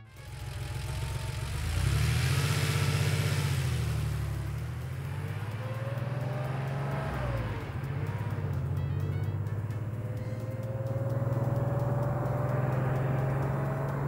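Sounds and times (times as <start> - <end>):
cartoon car engine rumble: 0.0 - 14.0.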